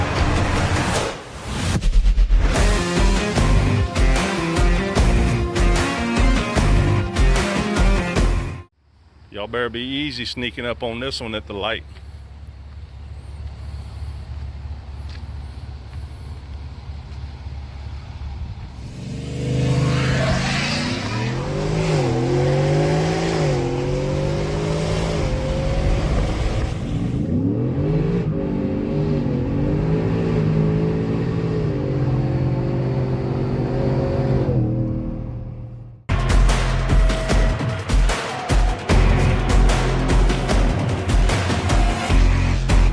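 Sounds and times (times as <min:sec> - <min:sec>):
supercharged truck engine accelerating: 0:17.3 - 0:38.0, 0:38.8 - 0:42.9.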